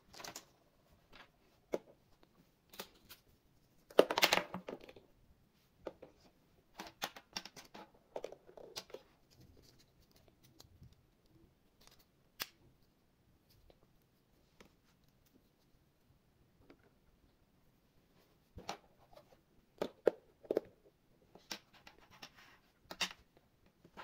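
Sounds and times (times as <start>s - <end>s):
clicks and snips of small objects: 1.1s - 3.3s, 6.8s - 12.6s.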